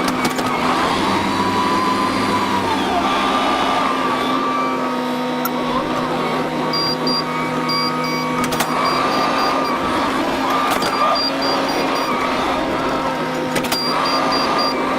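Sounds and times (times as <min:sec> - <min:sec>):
vehicle engine running: 0:05.6 - 0:14.9.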